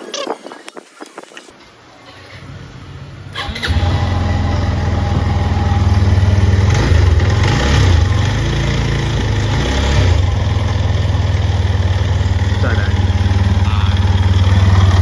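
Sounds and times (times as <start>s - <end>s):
motorcycle engine idling: 3.8s - 15.0s.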